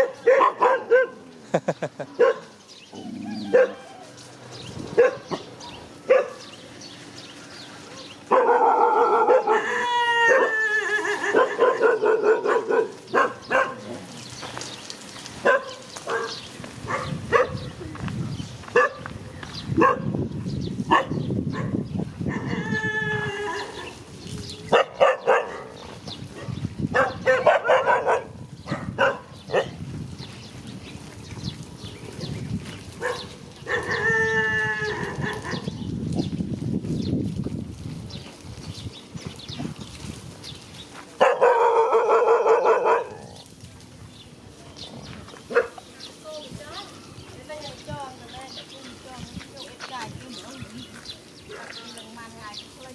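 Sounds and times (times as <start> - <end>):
dogs barking: 0.0 - 1.3, 2.0 - 4.1, 4.9 - 6.6, 7.9 - 10.6, 11.2 - 14.2, 15.4 - 17.8, 18.7 - 20.2, 20.9 - 22.6, 24.7 - 29.8, 33.0 - 34.3, 35.0 - 35.8, 41.2 - 43.4, 45.4 - 45.9, 51.5 - 52.0
dog howling: 3.0 - 4.1, 8.3 - 12.7.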